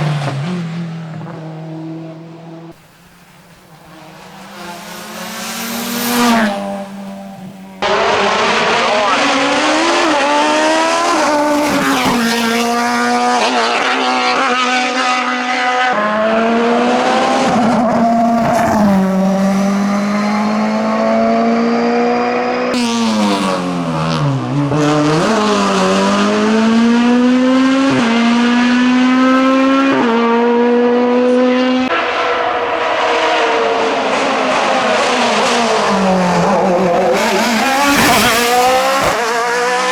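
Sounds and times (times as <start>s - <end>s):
racing car engine shifting gears: 0.0s - 39.9s.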